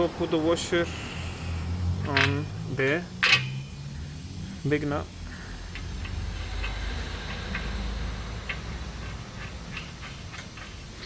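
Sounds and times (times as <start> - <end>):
metallic clicks of nut turning: 2.0 - 2.6, 3.2 - 3.8, 5.7 - 11.0.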